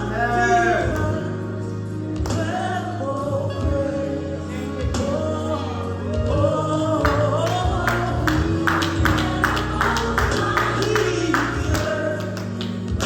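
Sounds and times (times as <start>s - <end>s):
gospel singing over band: 0.0s - 13.0s.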